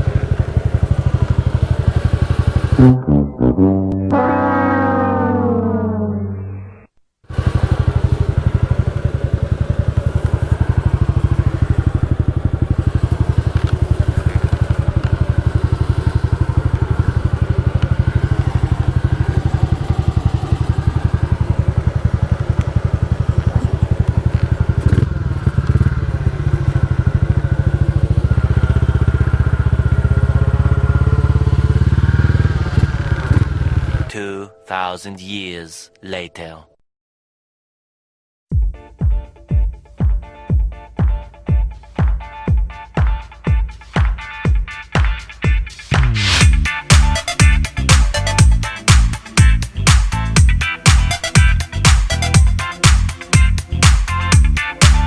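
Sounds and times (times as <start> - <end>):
motorcycle engine running: 0.0 - 6.1, 7.3 - 34.1, 45.9 - 55.0.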